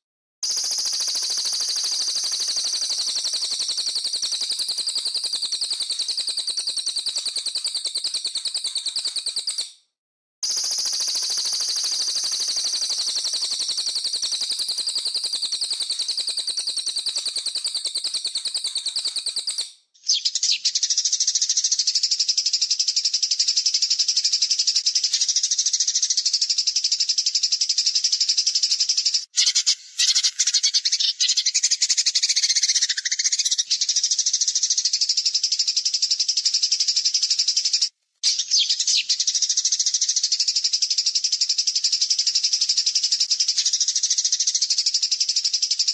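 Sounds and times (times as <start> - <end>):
songbird high trilling calls: 15.5 - 22.3, 27.5 - 35.2, 37.6 - 40.4.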